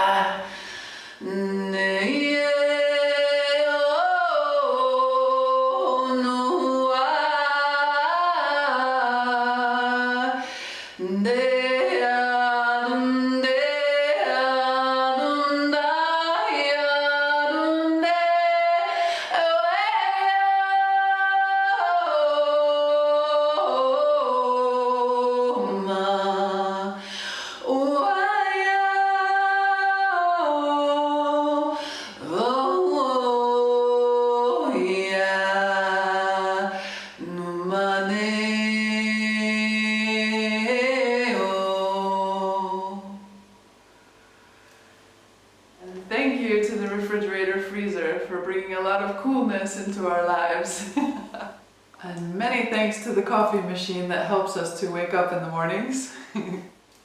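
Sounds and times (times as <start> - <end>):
woman singing sustained vowel tones: 0.0 - 43.6.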